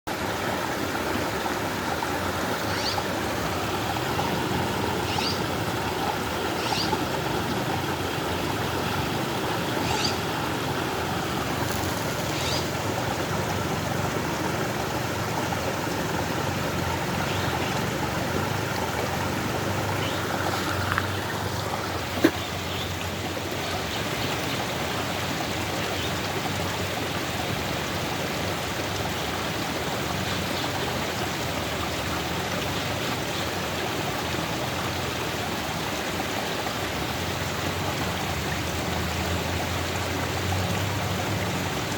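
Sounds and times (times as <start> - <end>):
creek water rushing: 0.0 - 41.9.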